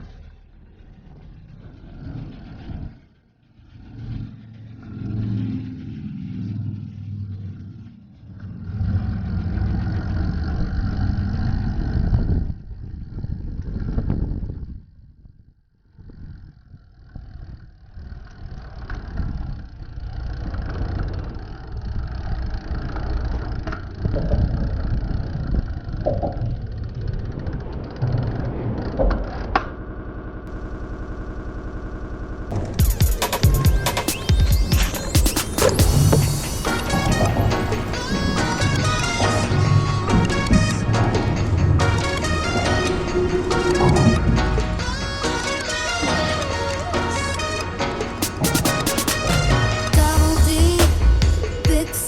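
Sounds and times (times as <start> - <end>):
wind buffeting microphone: 8.7 - 18.1, 23.5 - 30.5, 34.9 - 46.0.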